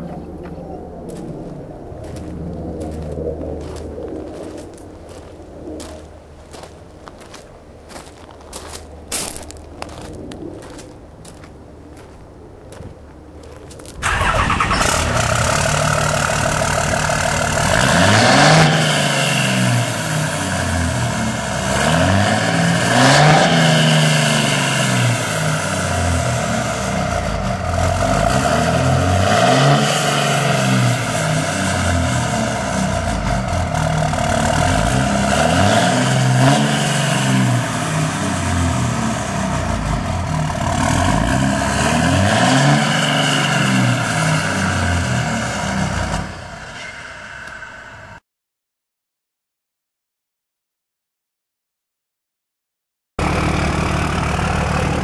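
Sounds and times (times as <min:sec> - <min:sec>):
diesel truck engine revving: 0:14.0 - 0:47.7, 0:53.2 - 0:55.0.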